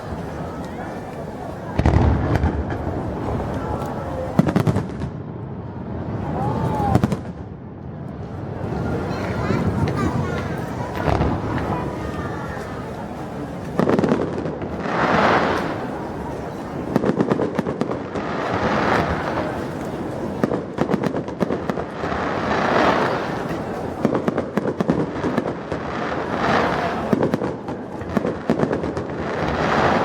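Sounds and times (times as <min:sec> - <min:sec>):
fireworks bangs and crackles: 0:00.0 - 0:30.0
fireworks hiss: 0:11.0 - 0:17.2, 0:22.0 - 0:27.4.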